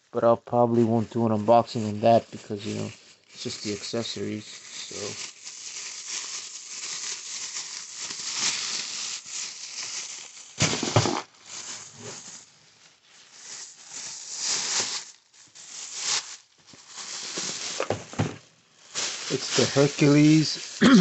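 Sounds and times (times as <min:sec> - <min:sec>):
packaging crinkling and rustling: 0:01.5 - 0:21.0
thump: 0:10.6 - 0:11.2, 0:17.8 - 0:18.4.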